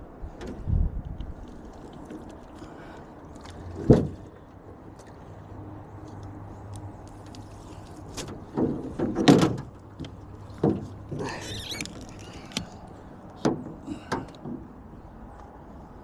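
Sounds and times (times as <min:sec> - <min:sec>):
knocks and thumps against boat: 0:03.7 - 0:04.4, 0:08.1 - 0:11.8, 0:13.4 - 0:14.8.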